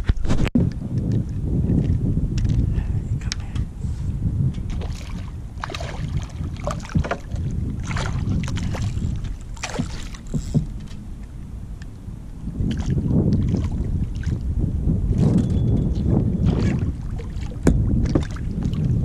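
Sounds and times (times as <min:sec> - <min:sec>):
wind rumble on microphone: 0:00.0 - 0:19.0
water splashing around kayak: 0:04.1 - 0:19.0.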